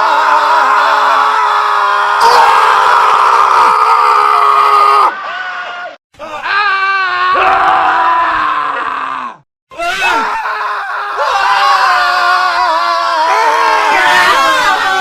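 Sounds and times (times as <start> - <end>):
men screaming: 0.0 - 15.0.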